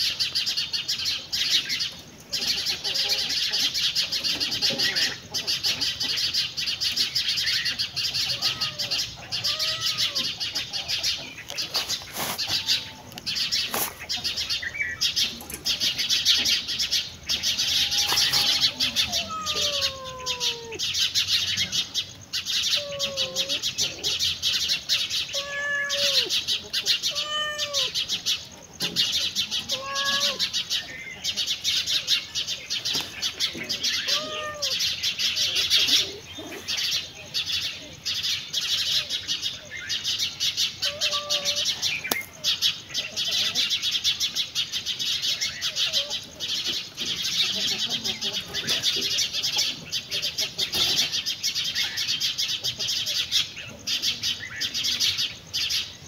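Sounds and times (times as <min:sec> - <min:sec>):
birds chirping rapidly: 0:00.0 - 0:56.0
low arching bird call: 0:07.2 - 0:28.4.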